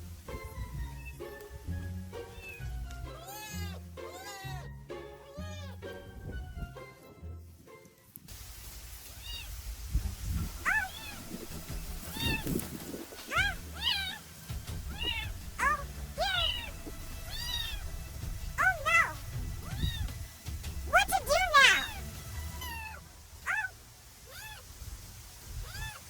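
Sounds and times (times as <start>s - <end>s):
kitten mewing: 10.6s - 11.4s, 12.1s - 14.2s, 14.8s - 17.9s, 18.5s - 20.1s, 20.9s - 24.6s, 25.6s - 26.0s.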